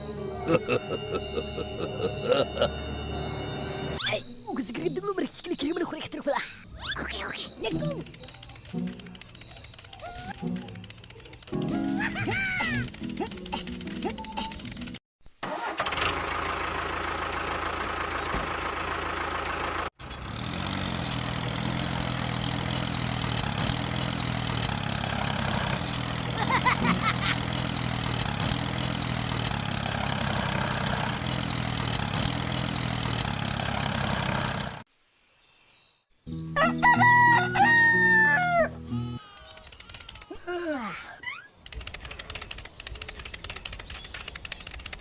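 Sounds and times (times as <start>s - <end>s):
engine idling: 12.8s - 34.8s.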